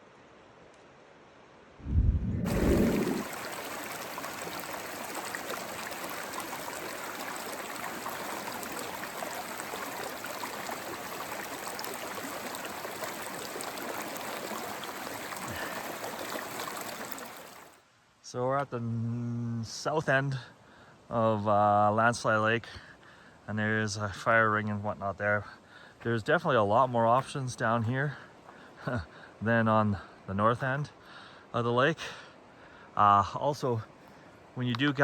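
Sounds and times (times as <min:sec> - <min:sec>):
loud low rumbling thump: 0:01.8 - 0:03.1
creek water rushing: 0:01.9 - 0:17.8.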